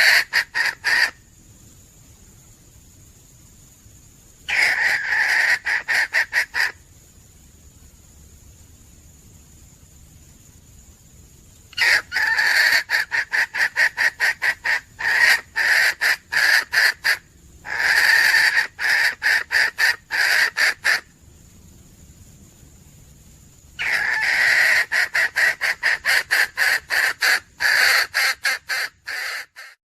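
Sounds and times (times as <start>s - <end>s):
hen clucking rapidly: 0.0s - 1.2s, 4.5s - 6.8s, 11.8s - 21.1s, 23.8s - 29.8s.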